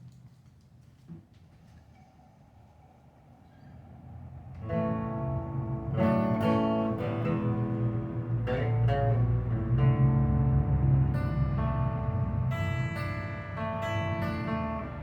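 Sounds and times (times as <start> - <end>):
acoustic guitar strumming: 4.6 - 15.0
steady low bass tone: 4.6 - 15.0.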